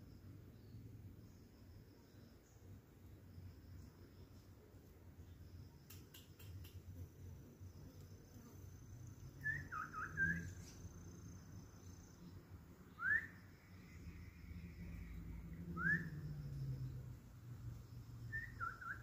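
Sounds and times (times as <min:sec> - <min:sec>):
songbird whistled calls: 0:09.4 - 0:10.8, 0:12.9 - 0:13.6, 0:15.8 - 0:16.2, 0:18.3 - 0:19.0.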